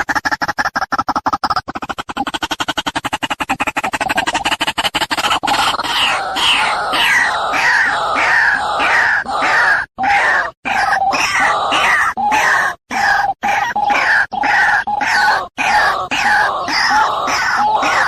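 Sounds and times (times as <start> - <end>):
waterhen calling harshly: 5.2 - 18.0.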